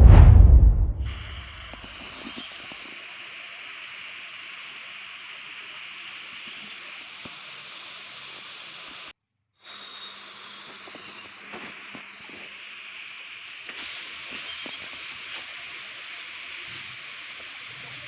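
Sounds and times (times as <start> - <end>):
steady hiss: 1.0 - 9.1.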